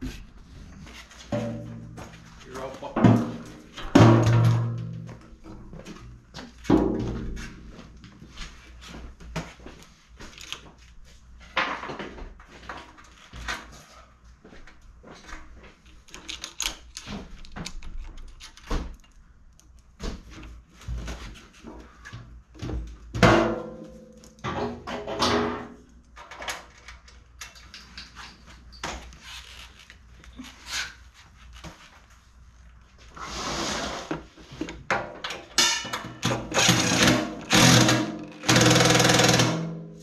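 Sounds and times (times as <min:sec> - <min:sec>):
metal tools clanking: 0:35.3 - 0:39.4.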